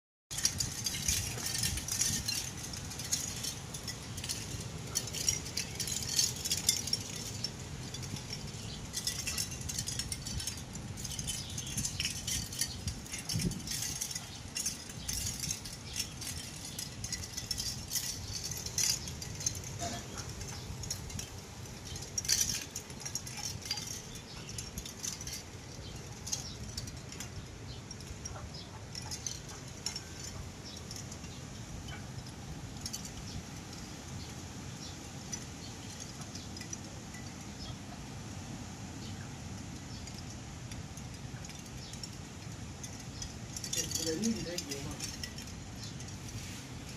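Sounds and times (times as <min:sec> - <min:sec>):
small rattles and clinks: 0:00.3 - 0:46.9
strong wind blowing: 0:00.4 - 0:28.2.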